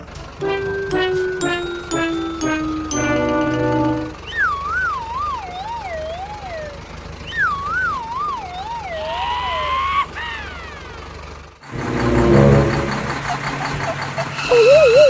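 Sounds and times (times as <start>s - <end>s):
short rising electronic tone: 11.7s - 13.6s.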